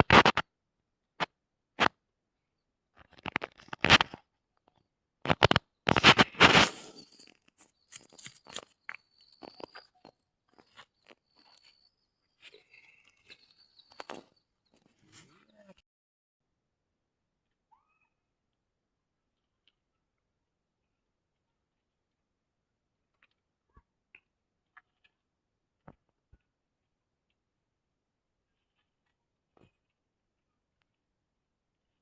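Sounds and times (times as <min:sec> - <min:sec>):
loud crunching and scraping: 0:05.3 - 0:15.3
faint high bird chirps: 0:07.1 - 0:15.7.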